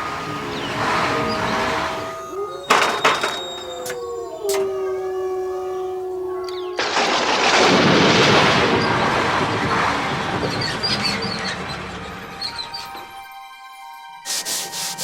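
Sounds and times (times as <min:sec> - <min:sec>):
music: 0:10.3 - 0:15.0.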